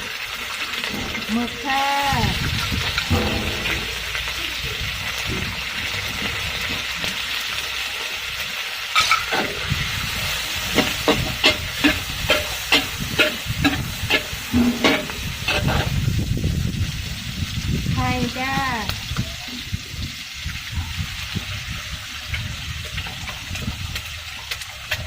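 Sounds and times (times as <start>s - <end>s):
seafood sizzling in a hot wok: 0.0s - 25.0s
metal spatula scraping a wok: 2.8s - 4.4s, 8.9s - 16.0s.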